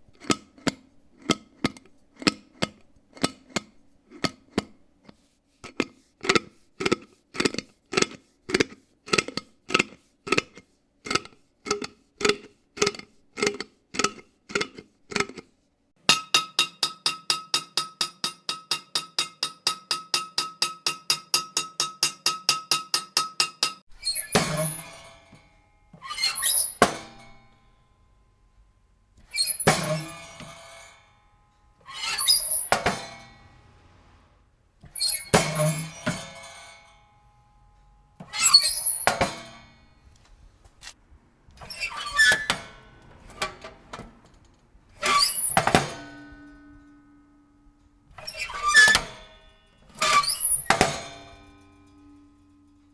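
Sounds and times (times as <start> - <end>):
crashes with glassy clinking: 24.1 - 25.4, 29.4 - 31.3, 35.1 - 37.2.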